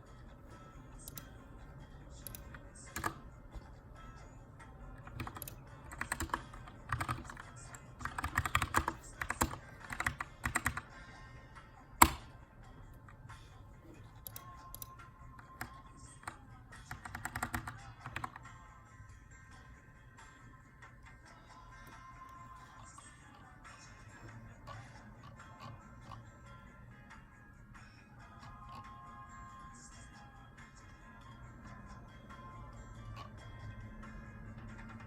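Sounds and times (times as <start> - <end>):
mechanical keyboard typing: 2.2 - 3.6, 5.0 - 10.9, 12.0 - 12.3, 14.2 - 18.5.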